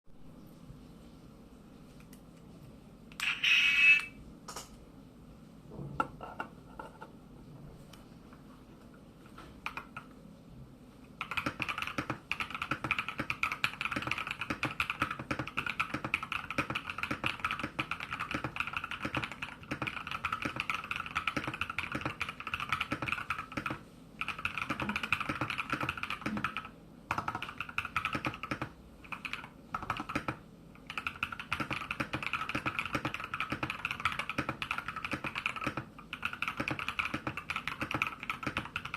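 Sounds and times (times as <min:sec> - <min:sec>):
mechanical keyboard typing: 0:09.6 - 0:10.1, 0:11.2 - 0:38.9.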